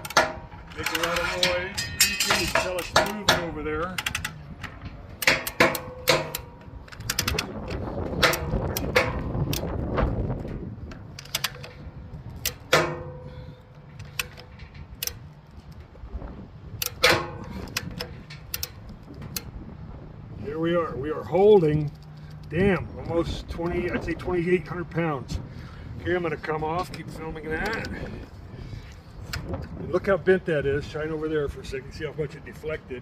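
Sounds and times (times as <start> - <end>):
metal platform creaking and popping: 0.0 - 15.9, 16.7 - 19.6.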